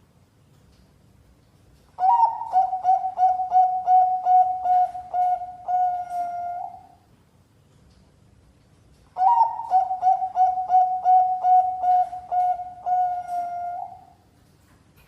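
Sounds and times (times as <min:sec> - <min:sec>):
dove cooing song: 0:02.0 - 0:07.0, 0:09.2 - 0:14.2.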